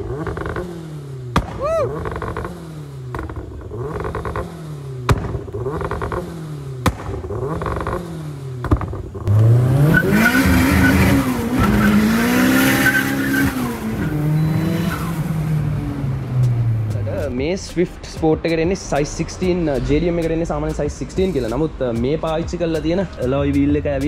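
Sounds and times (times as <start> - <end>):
turbocharged car engine revving: 0.0 - 17.8
sharp anti-lag bangs: 1.3 - 1.6, 4.3 - 7.6.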